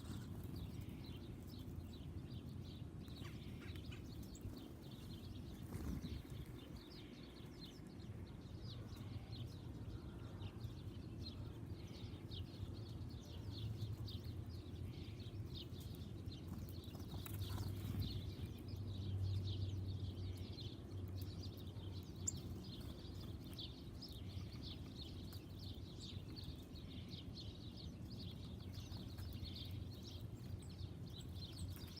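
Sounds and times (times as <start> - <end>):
low outdoor rumble: 0.0 - 32.0
songbirds chirping: 0.0 - 32.0.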